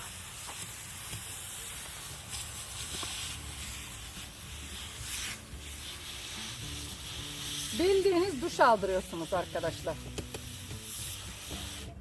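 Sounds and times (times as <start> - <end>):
garden sprayer hissing: 0.0 - 12.0.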